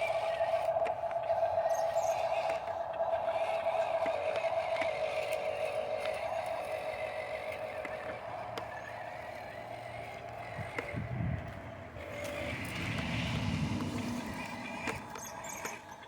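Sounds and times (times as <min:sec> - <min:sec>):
low rumble: 0:00.0 - 0:15.5
dump truck whine: 0:00.0 - 0:16.0.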